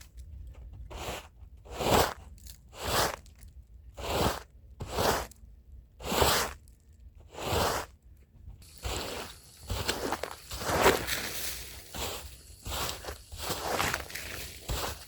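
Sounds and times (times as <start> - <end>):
brush scrubbing a rug: 4.0 - 5.4, 6.0 - 6.6, 7.3 - 7.9, 8.6 - 15.0.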